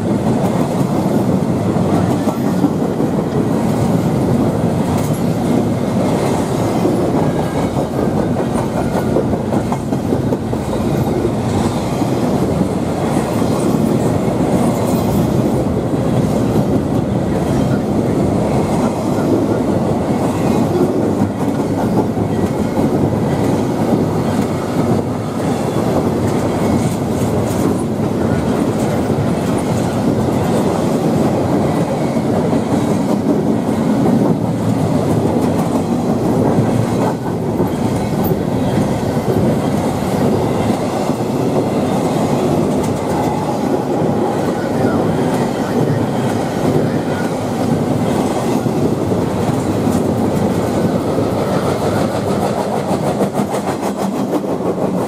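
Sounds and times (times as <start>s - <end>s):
clickety-clack over rail joints: 0.0s - 55.0s
freight train wheels rumbling on rail: 0.0s - 55.0s.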